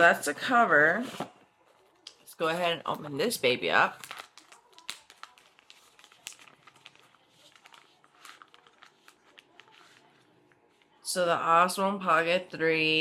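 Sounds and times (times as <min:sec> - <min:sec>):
packaging rustling and crinkling: 0:03.8 - 0:10.3.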